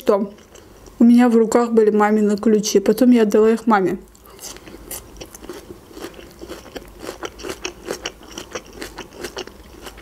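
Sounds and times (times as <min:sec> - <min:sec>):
crunchy chewing of pepper: 0:04.1 - 0:10.0.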